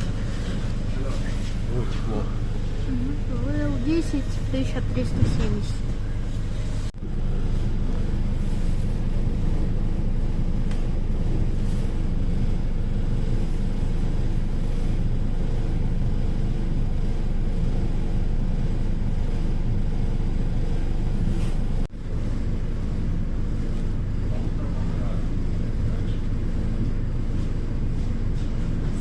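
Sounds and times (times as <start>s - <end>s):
train rumbling: 1.3s - 6.9s.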